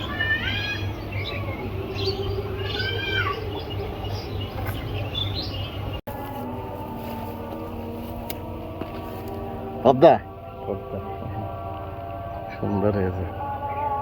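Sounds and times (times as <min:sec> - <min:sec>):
small birds chirping: 0:00.0 - 0:06.0
low hum: 0:00.9 - 0:14.0
droning tone: 0:05.9 - 0:14.0.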